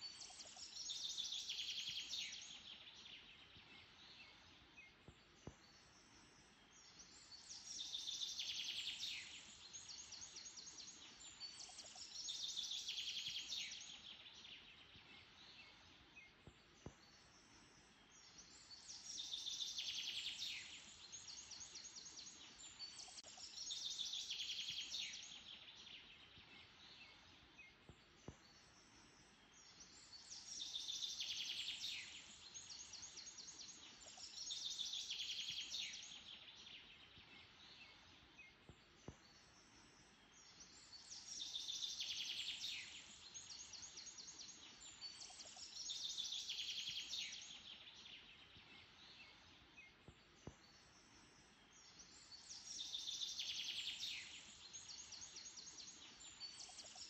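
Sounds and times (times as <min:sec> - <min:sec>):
faint steady hiss: 0:00.0 - 0:57.0
songbird singing: 0:00.0 - 0:57.0.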